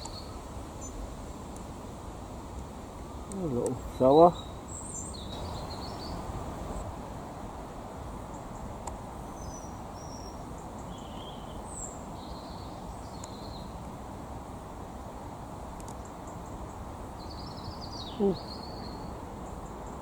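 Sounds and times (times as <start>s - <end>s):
high bird chirps: 4.0s - 6.8s.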